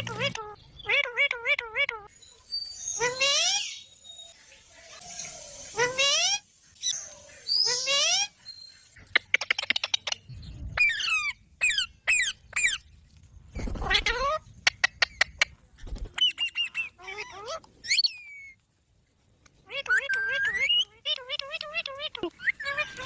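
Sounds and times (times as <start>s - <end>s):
parrot squawking and chirping: 0.0s - 4.3s, 5.2s - 12.8s, 13.8s - 15.6s, 16.2s - 18.6s, 19.6s - 23.0s
parrot clicking chatter: 9.0s - 10.3s, 19.8s - 23.0s.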